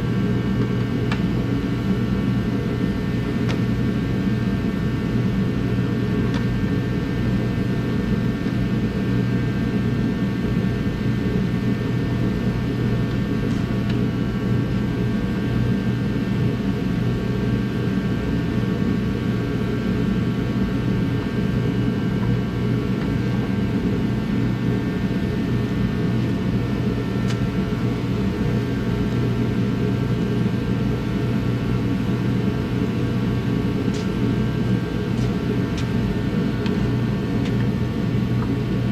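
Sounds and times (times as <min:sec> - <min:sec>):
machine drone with low hum: 0:00.0 - 0:38.9.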